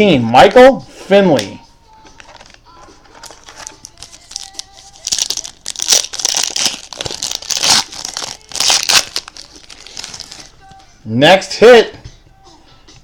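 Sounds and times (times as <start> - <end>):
plastic wrapper crinkling and tearing: 2.2 - 10.8.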